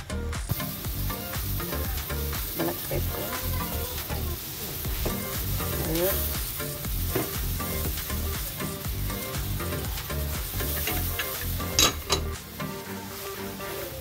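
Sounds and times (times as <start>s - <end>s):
food sizzling in a wok: 0.5s - 14.0s
metal spatula scraping pan: 10.5s - 14.0s.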